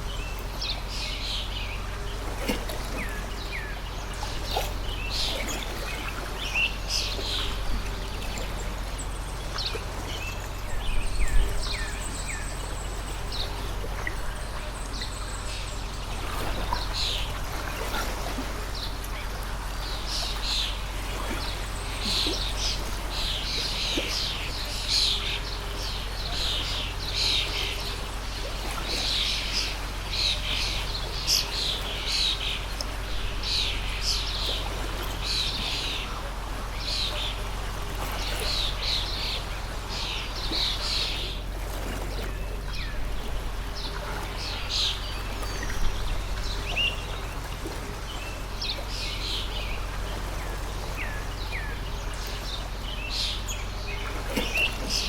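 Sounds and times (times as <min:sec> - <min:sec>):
birds chirping: 0:00.0 - 0:55.0
flowing stream: 0:00.0 - 0:55.0.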